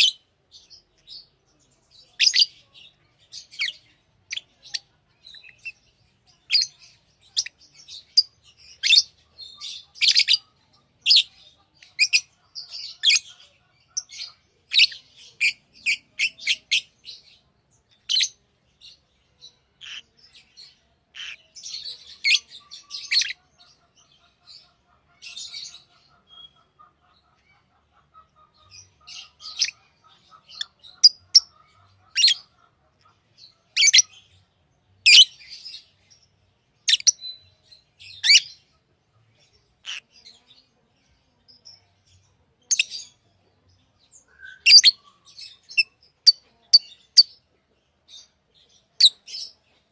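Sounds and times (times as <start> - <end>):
lovebirds chirping: 0.0 - 49.9.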